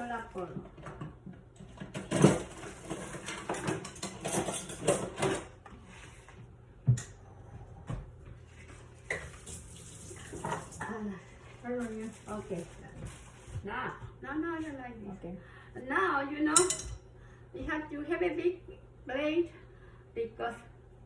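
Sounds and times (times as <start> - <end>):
utensils clattering against pans: 0.7 - 5.6, 9.1 - 11.0, 16.6 - 17.0.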